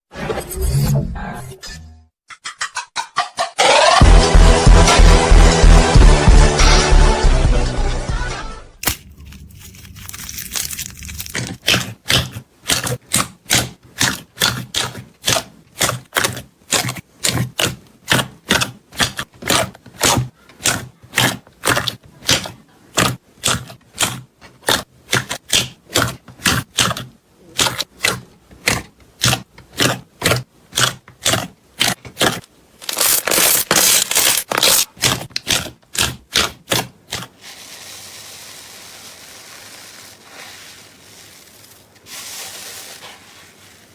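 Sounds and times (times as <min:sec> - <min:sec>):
slime crackling when squeezed: 0:32.2 - 0:34.9.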